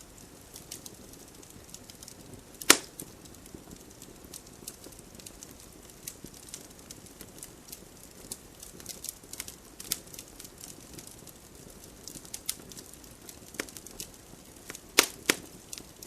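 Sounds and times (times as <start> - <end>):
campfire crackling: 0.0 - 16.0
loud sharp pop: 2.7 - 2.9, 15.0 - 15.4.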